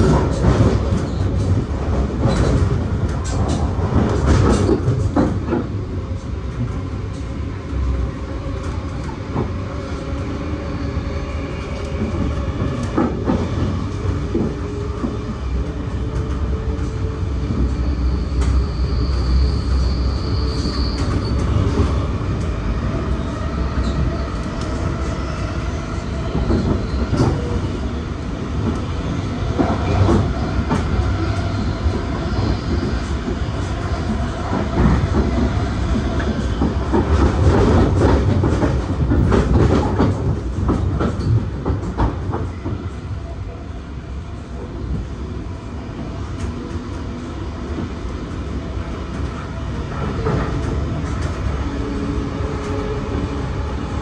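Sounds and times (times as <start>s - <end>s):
clacks over rail joints: 0.0s - 5.8s, 34.0s - 42.9s
train wheels rumbling on rails: 0.0s - 54.0s.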